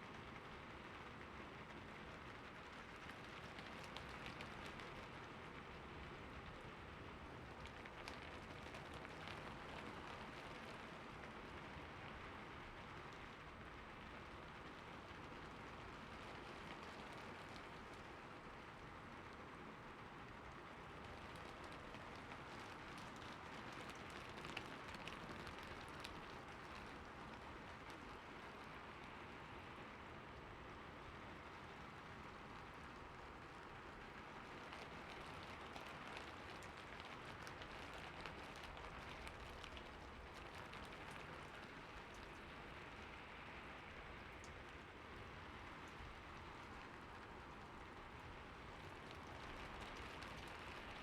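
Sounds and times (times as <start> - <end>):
light rain hissing: 19.8 - 51.0
raindrops ticking: 20.9 - 28.0, 33.3 - 45.0, 45.7 - 51.0.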